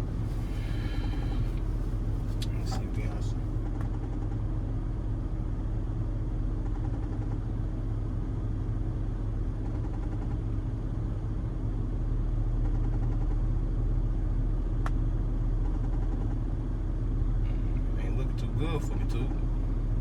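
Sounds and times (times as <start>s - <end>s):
vehicle engine idling: 0.0s - 9.6s, 16.9s - 20.0s.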